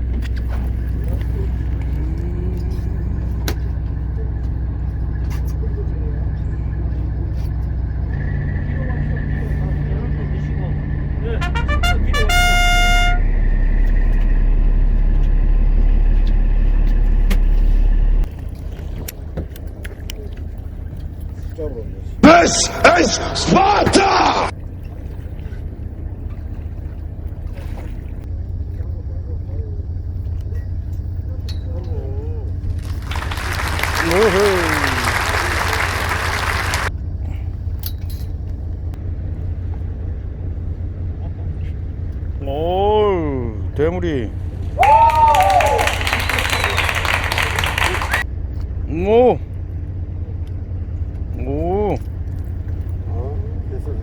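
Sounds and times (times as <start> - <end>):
quieter rumble: 0.0 - 22.2
low engine rumble: 0.0 - 54.0.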